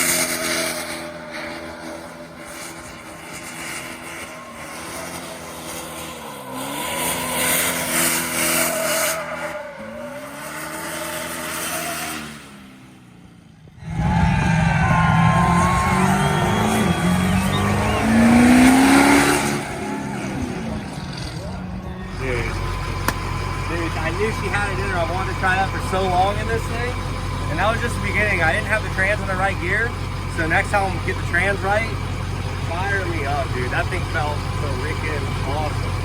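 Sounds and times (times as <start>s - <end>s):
tires squealing: 0.0s - 12.7s, 13.8s - 36.0s
engine revving: 0.0s - 36.0s.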